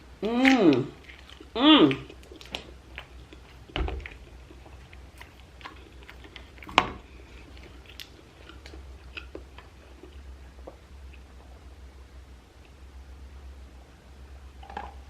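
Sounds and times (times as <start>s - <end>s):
low steady hum: 0.0s - 15.0s
person chewing: 0.2s - 11.6s.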